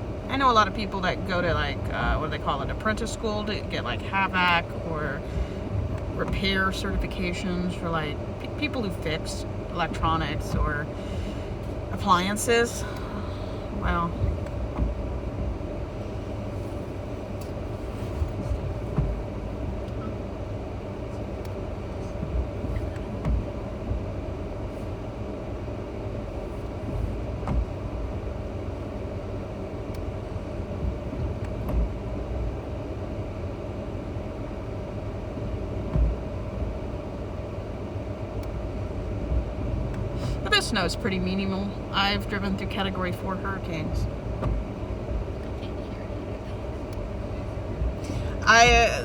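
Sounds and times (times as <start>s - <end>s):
car cabin road noise rumble: 0.0s - 49.0s
steady hum: 0.0s - 49.0s
light bumps: 16.8s - 20.3s.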